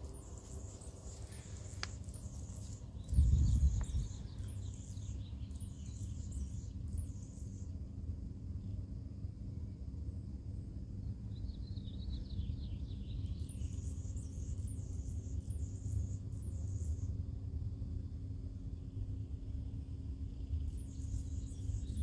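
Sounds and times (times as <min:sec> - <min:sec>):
birds chirping: 0:00.0 - 0:07.8
low steady rumble: 0:00.0 - 0:22.0.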